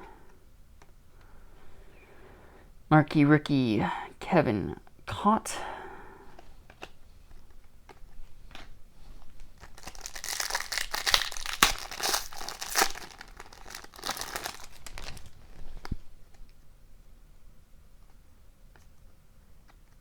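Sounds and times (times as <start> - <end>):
foil wrapper tearing and crinkling: 9.4 - 15.9.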